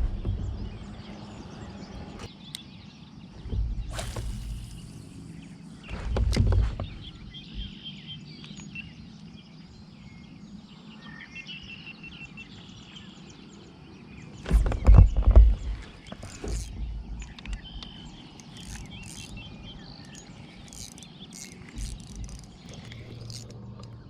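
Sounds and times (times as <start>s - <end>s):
low rumble: 0.0s - 2.3s, 3.4s - 7.8s.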